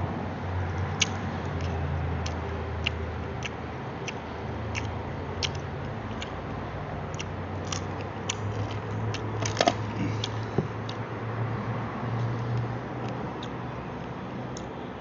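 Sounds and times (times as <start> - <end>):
crunchy chewing: 0.7 - 6.4, 7.1 - 11.0.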